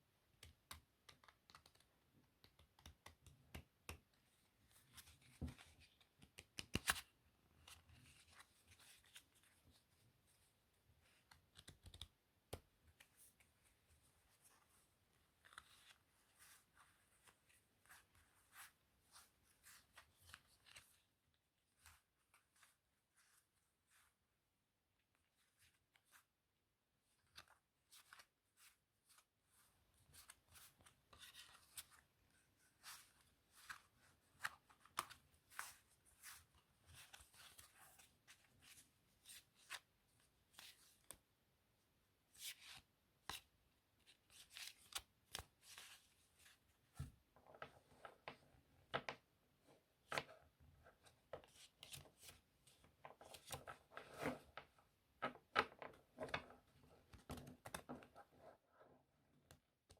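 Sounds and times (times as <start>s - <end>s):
playing cards being shuffled: 0.7s - 1.9s, 4.9s - 9.5s, 11.2s - 13.4s, 15.4s - 21.0s, 32.8s - 39.9s.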